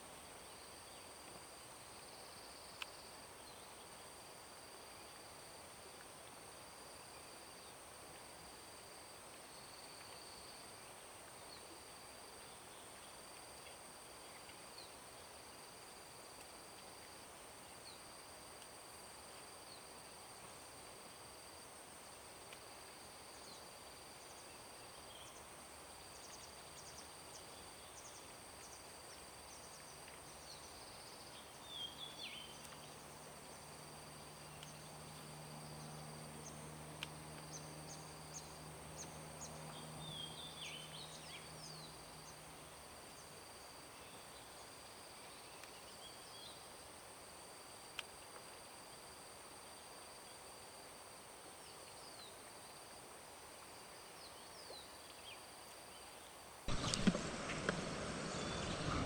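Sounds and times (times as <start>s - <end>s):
faint low hum: 56.7s - 59.0s
short falling bird chirps: 56.7s - 59.0s.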